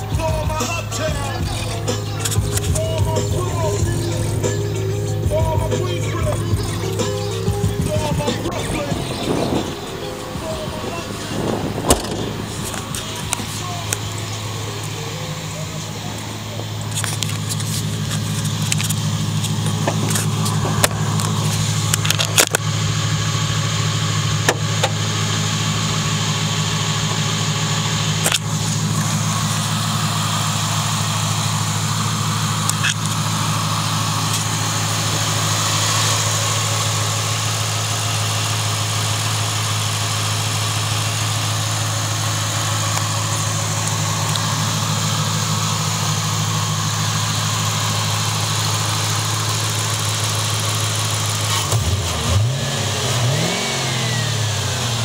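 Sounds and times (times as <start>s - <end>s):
car engine idling: 0.0s - 55.0s
sharp clicks and knocks: 11.9s - 14.0s.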